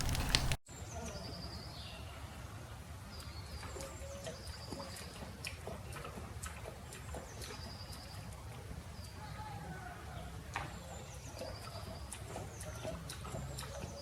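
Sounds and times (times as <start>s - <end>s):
birds chirping: 3.1s - 14.0s.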